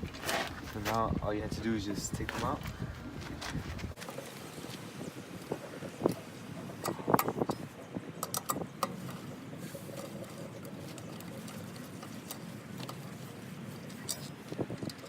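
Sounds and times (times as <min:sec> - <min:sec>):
lug wrench metal clicks: 0:06.8 - 0:09.2
faint handling sounds: 0:08.8 - 0:15.0.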